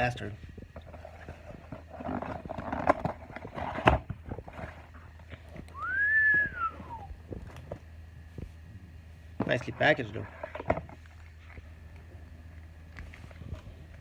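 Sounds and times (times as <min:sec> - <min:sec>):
whistled note rising and falling: 0:05.8 - 0:07.1.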